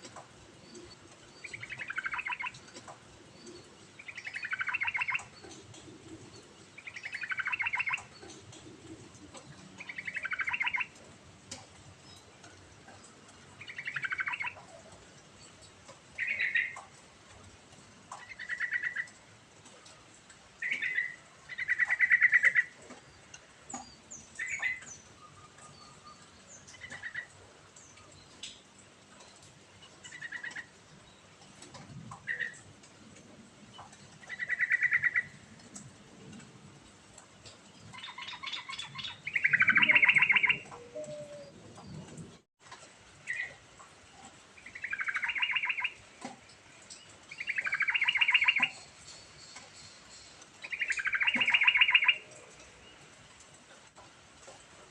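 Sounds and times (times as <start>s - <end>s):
bird singing: 0.7s - 2.8s, 3.4s - 8.4s, 9.3s - 10.9s, 13.6s - 14.6s, 16.2s - 16.8s, 37.8s - 42.1s, 44.6s - 46.0s, 46.9s - 53.0s.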